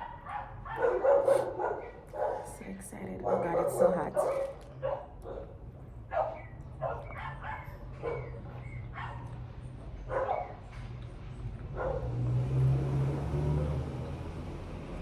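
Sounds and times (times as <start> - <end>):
dog barking: 0.0 - 2.6, 3.2 - 9.4, 10.1 - 10.6, 11.7 - 12.2.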